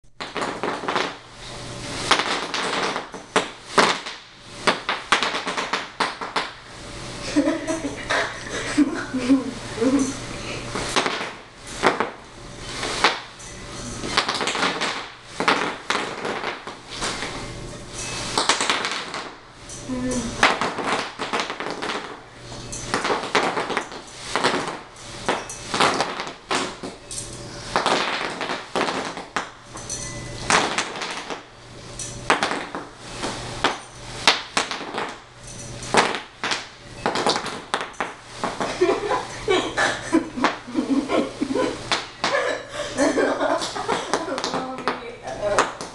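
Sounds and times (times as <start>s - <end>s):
bubble wrap popping: 0.2s - 1.2s, 2.0s - 6.6s, 10.8s - 12.2s, 14.1s - 17.4s, 18.3s - 19.4s, 20.3s - 22.2s, 22.9s - 27.0s, 27.8s - 29.6s, 30.5s - 31.5s, 32.2s - 35.2s.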